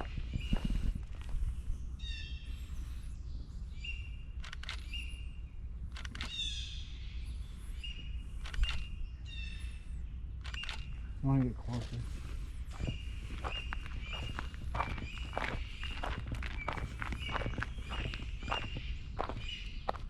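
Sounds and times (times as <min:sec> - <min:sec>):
birds whistling: 0:00.0 - 0:11.2, 0:12.2 - 0:20.0
high bird warble: 0:00.0 - 0:20.0
low steady rumble: 0:00.0 - 0:20.0
sharp clicks: 0:04.4 - 0:05.1, 0:05.9 - 0:06.5, 0:08.4 - 0:09.0, 0:10.4 - 0:11.0.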